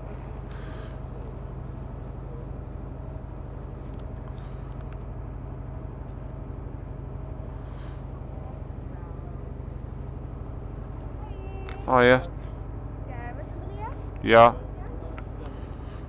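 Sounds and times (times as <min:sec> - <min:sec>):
engine rumbling: 0:00.0 - 0:16.0
faint clicks: 0:11.0 - 0:11.9.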